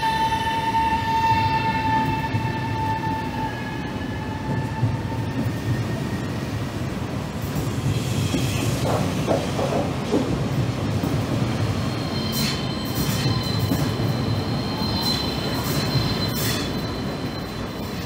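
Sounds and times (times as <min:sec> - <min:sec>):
train wheels rumbling: 0:00.0 - 0:18.0
high steady squeal: 0:11.8 - 0:18.0.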